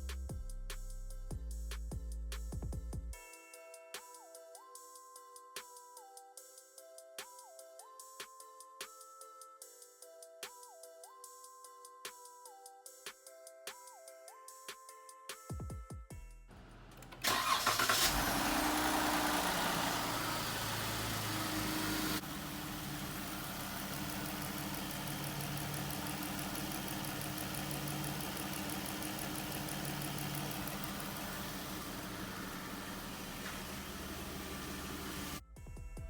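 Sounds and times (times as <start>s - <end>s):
car engine starting and idling: 16.5s - 35.4s.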